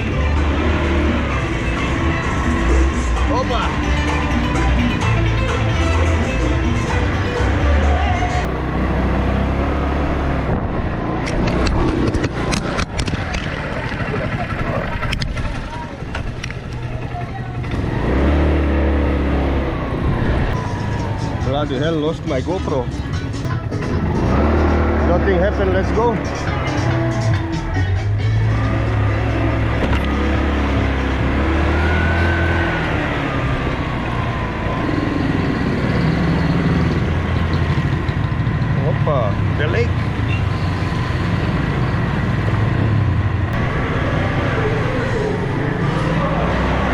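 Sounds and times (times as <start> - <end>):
motorcycle engine rumble: 0.0 - 46.9.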